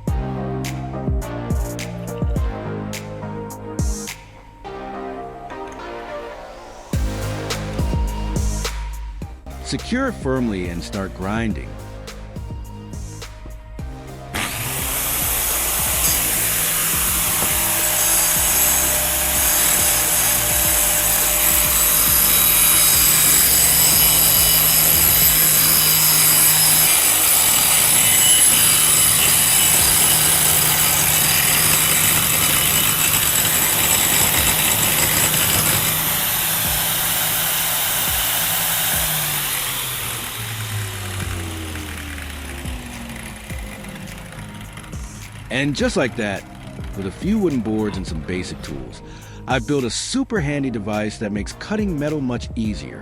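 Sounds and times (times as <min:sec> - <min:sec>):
angle grinder grinding metal: 0:06.8 - 0:52.3.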